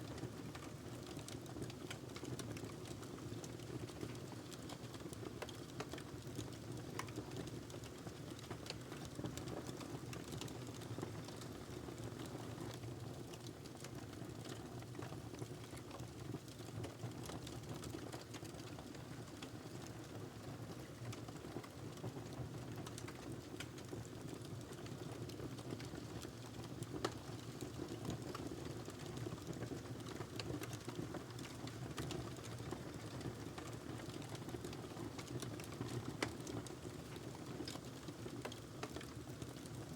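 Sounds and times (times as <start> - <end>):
wood fire crackling: 22.7 - 39.7.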